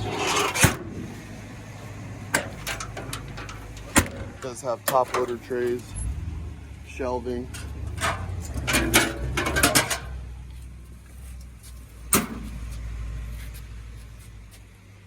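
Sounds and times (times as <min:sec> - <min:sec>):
low steady rumble: 0:00.0 - 0:15.0
metal hardware rattling and clanking: 0:02.3 - 0:10.3.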